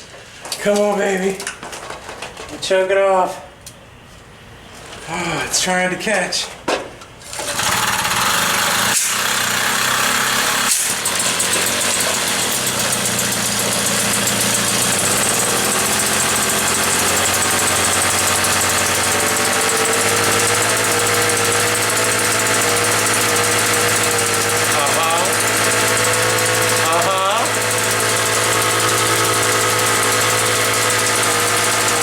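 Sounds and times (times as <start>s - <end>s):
moped engine starting and running: 7.3s - 32.0s.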